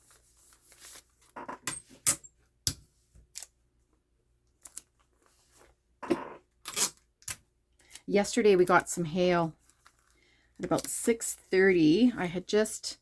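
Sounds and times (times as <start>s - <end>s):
paper rustling: 0.0s - 1.3s.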